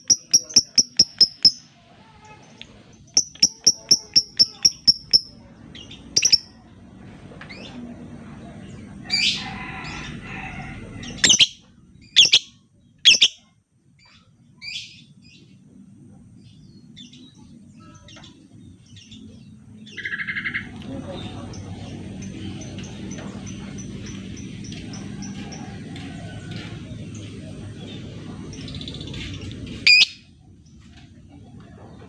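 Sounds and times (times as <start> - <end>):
harsh chattering bird call: 0.0 - 1.7, 3.0 - 6.6, 11.0 - 13.4, 28.6 - 30.3
lovebird chirping: 0.0 - 1.7, 3.0 - 6.6, 11.2 - 13.5.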